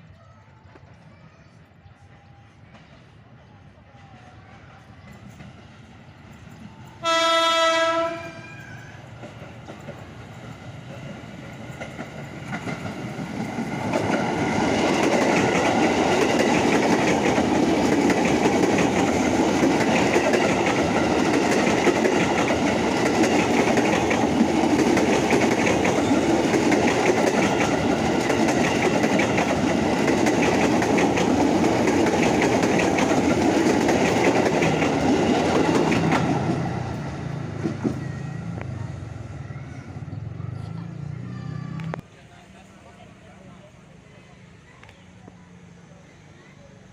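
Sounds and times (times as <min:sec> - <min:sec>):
train wheels clacking on rails: 0:04.0 - 0:38.8
train horn blast: 0:07.0 - 0:08.6.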